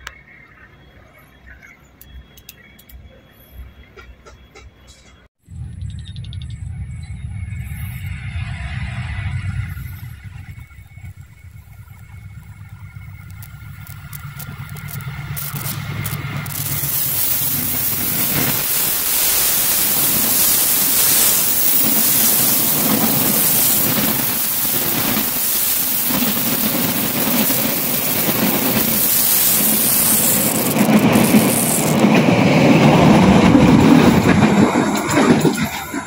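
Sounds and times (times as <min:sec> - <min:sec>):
train passing at speed: 0:06.4 - 0:36.0
carriage wheels clattering: 0:11.1 - 0:32.2.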